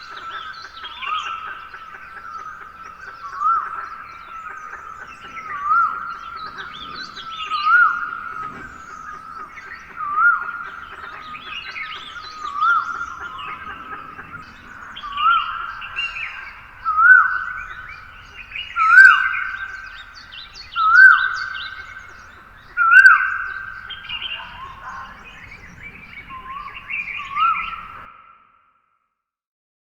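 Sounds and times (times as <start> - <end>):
birds chirping softly: 0.0 - 28.4.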